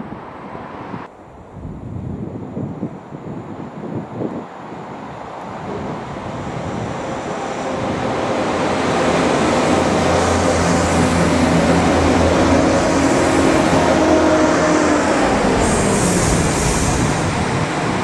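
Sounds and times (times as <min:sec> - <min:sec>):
train wheels rumbling on rails: 0:05.5 - 0:18.0
diesel engines humming: 0:06.3 - 0:18.0.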